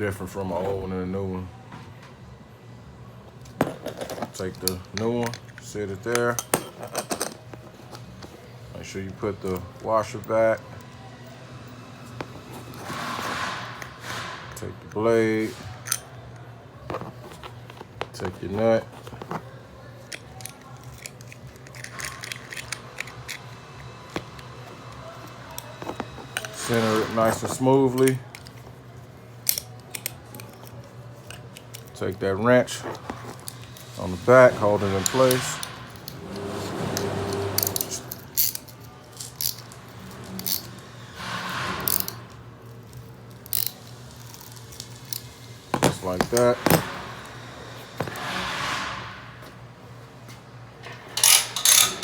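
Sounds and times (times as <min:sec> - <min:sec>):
wrench clinking on metal: 0:03.6 - 0:10.9, 0:37.6 - 0:40.8, 0:51.2 - 0:52.0.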